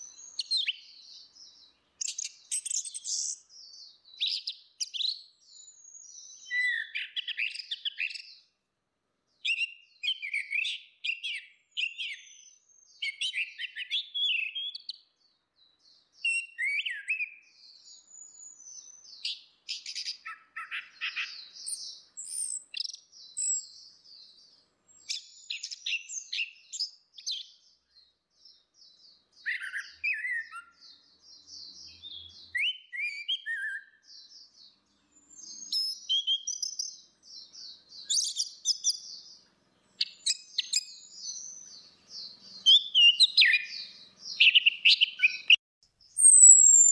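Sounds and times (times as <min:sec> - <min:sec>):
thrushes singing: 0:09.4 - 0:46.9.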